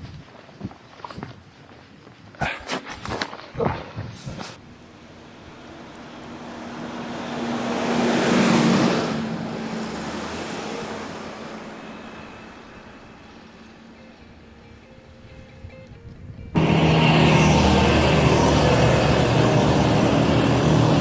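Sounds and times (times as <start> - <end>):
road vehicle passing by: 4.6 - 15.1, 16.6 - 21.0.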